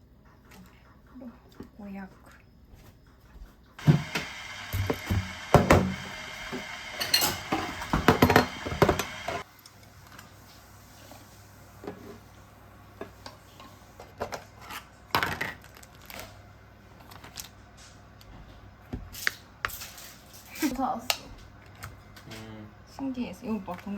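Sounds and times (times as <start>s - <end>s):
kitchenware clinking and knocking: 7.0s - 9.4s.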